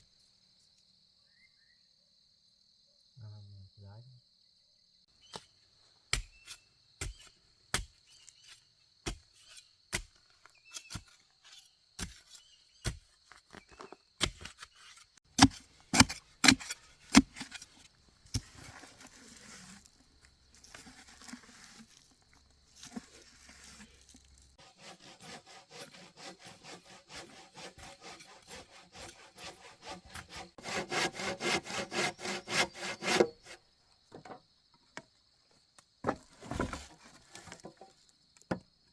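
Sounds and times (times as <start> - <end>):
hand saw cutting timber: 6.1 - 13.0, 14.2 - 22.1, 22.7 - 33.6.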